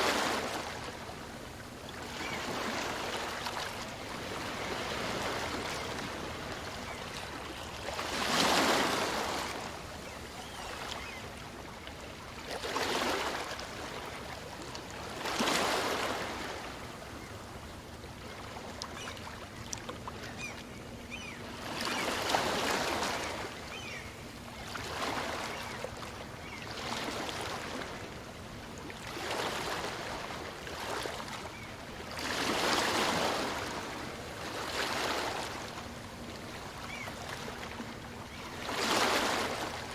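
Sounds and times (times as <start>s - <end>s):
small waves breaking on beach: 0.0s - 17.2s, 21.1s - 24.0s, 24.6s - 39.9s.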